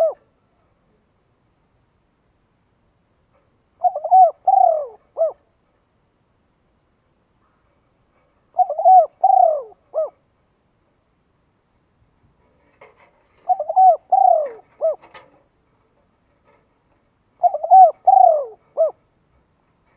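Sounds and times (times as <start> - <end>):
bird calling: 0.0 - 0.3, 3.8 - 5.5, 8.5 - 10.2, 13.4 - 15.2, 17.4 - 19.0.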